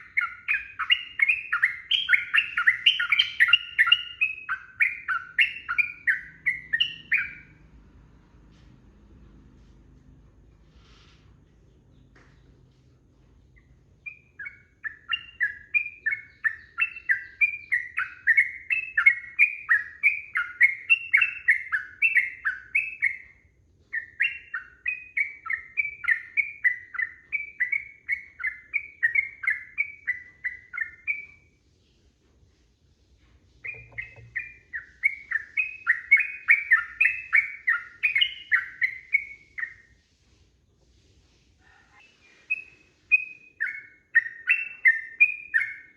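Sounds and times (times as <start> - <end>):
bulbul fast chattering song: 33.6 - 35.6.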